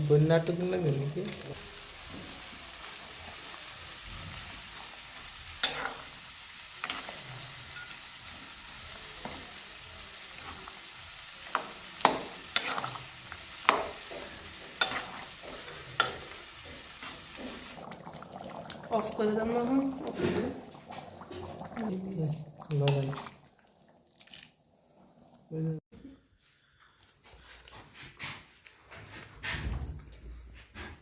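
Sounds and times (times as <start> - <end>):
curry sizzling in a pan: 0.0 - 25.8
spoon scraping and knocking pan: 5.6 - 6.1, 6.8 - 8.4, 11.4 - 18.0.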